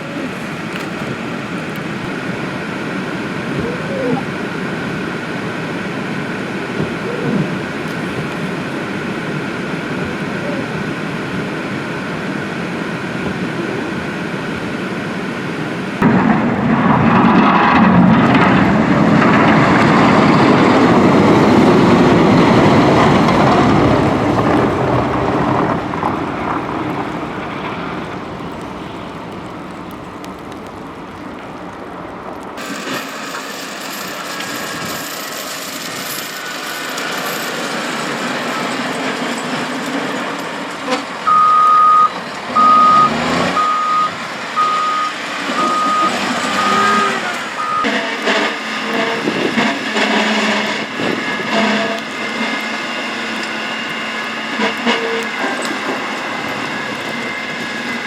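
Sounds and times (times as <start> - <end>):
road traffic noise: 0.0 - 58.0
heavy vehicle passing: 37.6 - 58.0.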